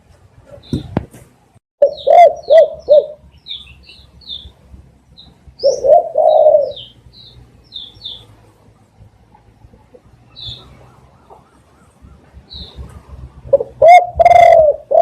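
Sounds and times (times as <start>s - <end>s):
small birds chirping: 0.4s - 1.2s, 1.8s - 15.0s
dove cooing: 1.8s - 3.2s, 5.6s - 7.0s, 9.7s - 15.0s.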